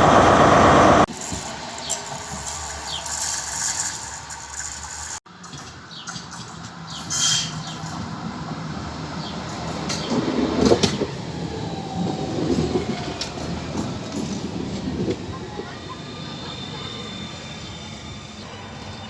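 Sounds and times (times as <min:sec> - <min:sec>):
tram rumbling on rails: 0:00.0 - 0:19.0
wheels clicking on track: 0:01.1 - 0:08.1.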